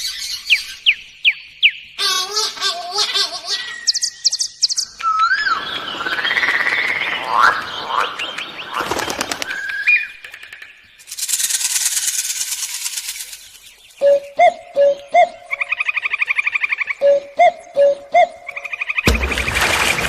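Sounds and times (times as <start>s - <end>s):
bird chirps: 3.1s - 11.2s, 12.6s - 19.4s
bird whistling: 3.8s - 6.0s
bird rattling trill: 8.8s - 14.0s.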